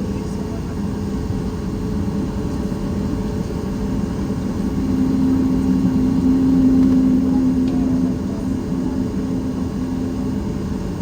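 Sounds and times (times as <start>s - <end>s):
airplane cabin rumble: 0.2s - 11.0s
engine hum: 3.4s - 11.0s.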